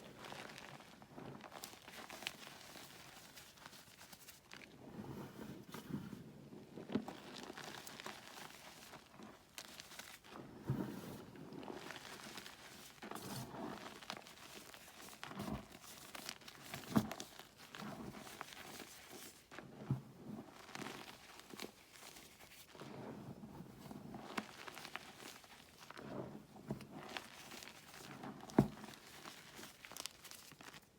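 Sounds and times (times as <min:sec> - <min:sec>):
chalk crumbling by hand: 0:11.0 - 0:19.6, 0:26.9 - 0:30.9.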